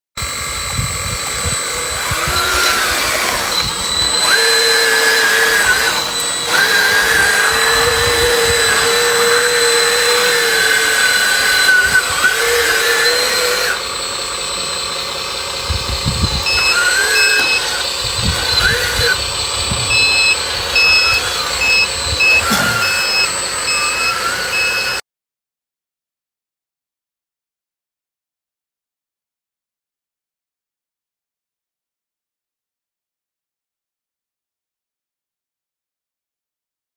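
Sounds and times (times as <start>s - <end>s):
electric motors whining: 0.2s - 25.0s.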